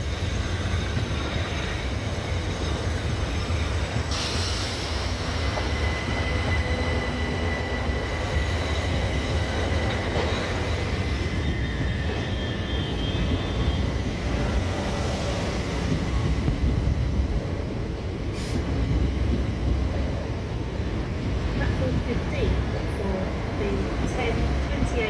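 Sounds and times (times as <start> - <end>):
train rumbling on rails: 0.0 - 25.0
high squealing of wheels: 0.1 - 15.9.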